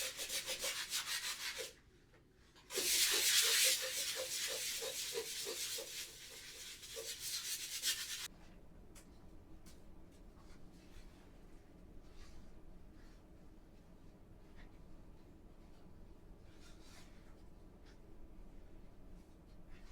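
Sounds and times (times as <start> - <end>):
brush scrubbing: 0.0 - 1.7, 2.7 - 8.3.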